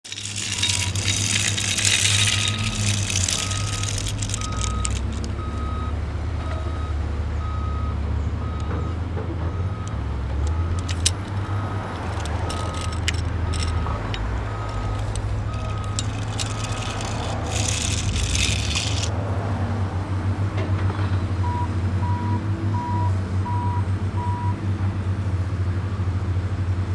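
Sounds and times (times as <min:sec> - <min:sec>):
metal clanks and clicks: 0:00.0 - 0:05.6, 0:09.8 - 0:19.1.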